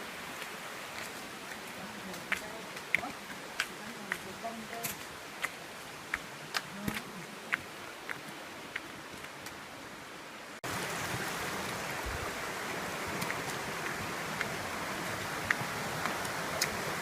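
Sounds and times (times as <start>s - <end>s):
rushing running water: 0.0s - 17.0s.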